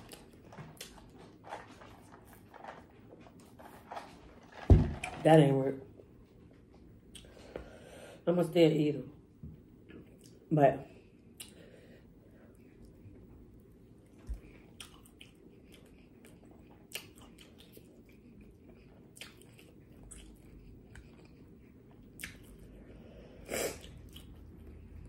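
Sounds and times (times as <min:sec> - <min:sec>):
chewing wet mouth sounds: 0:14.2 - 0:22.8, 0:23.7 - 0:25.0.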